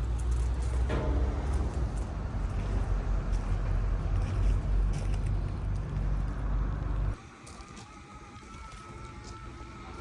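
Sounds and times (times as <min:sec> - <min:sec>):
vehicle engine rumbling: 0:00.0 - 0:07.2.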